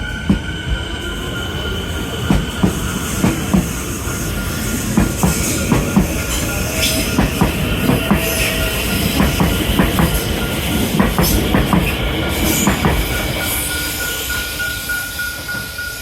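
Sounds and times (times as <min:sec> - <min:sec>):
train rumble: 0:00.0 - 0:16.0
train wheels knocking over rail joints: 0:02.2 - 0:13.2.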